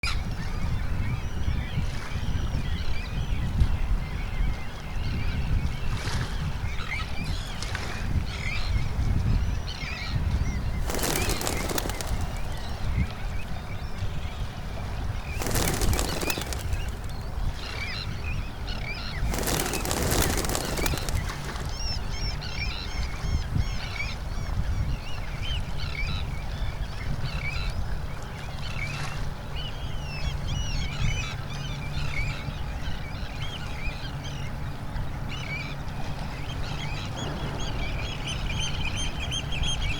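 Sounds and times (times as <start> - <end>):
flock of birds chirping: 8.3 - 27.7
loud rushing noises: 15.4 - 17.3, 19.2 - 21.8.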